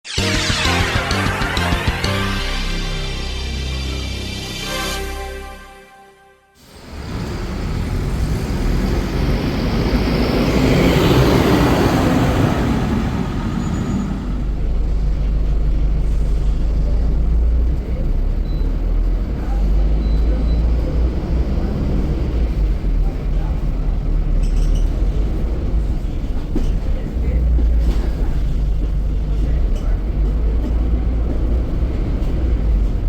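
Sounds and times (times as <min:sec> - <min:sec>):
bus engine rumbling: 0:06.6 - 0:33.0
road and traffic noise: 0:06.6 - 0:33.0
vehicle passing close by: 0:06.7 - 0:14.6.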